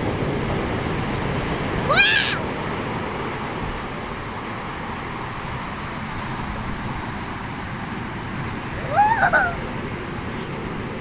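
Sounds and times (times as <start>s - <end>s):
heavy ocean surf: 0.0s - 11.0s
short rising voice: 8.8s - 9.7s.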